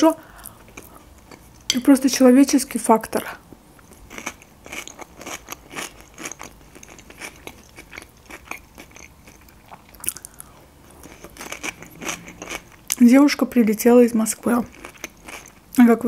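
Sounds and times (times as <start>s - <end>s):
chewing and wet mouth clicks: 4.3s - 10.5s.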